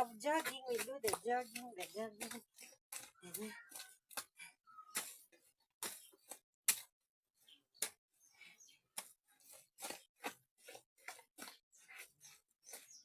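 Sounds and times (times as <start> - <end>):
bare feet squelching in mud: 9.0 - 13.0.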